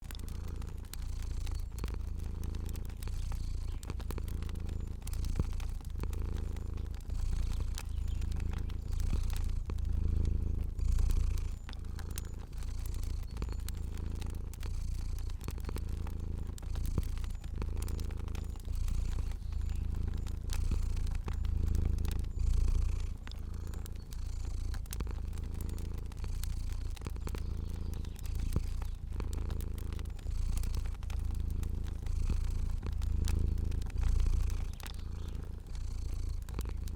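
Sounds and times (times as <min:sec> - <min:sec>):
cat purring: 0:00.0 - 0:36.9
wood fire crackling: 0:00.0 - 0:36.9.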